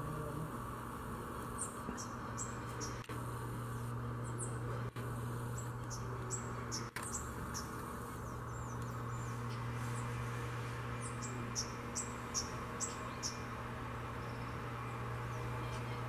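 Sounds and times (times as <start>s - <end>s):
steady low hum: 0.0s - 16.0s
small bird chirping: 5.5s - 10.1s, 11.0s - 16.0s.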